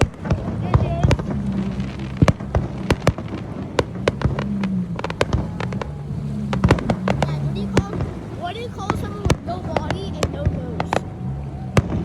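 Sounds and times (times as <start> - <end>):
jet ski engine hum: 0.0 - 12.0.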